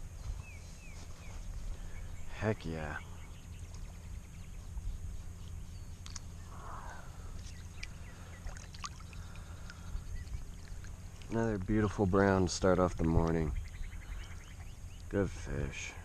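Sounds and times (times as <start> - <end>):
steady low rumble: 0.0 - 16.0
river water splashing and trickling: 7.6 - 13.2.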